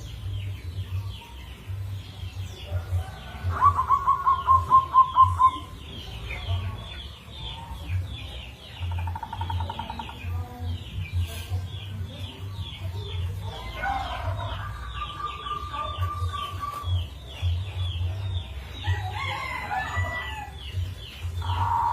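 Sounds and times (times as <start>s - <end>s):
rooster crowing: 18.8s - 20.6s.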